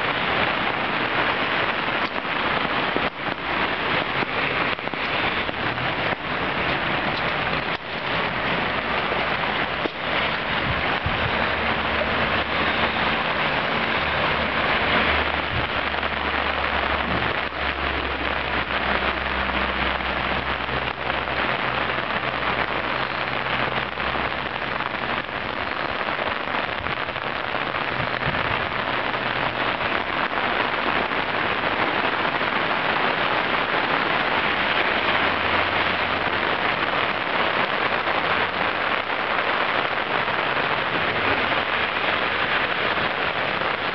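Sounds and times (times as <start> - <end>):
water rushing: 0.0 - 43.9.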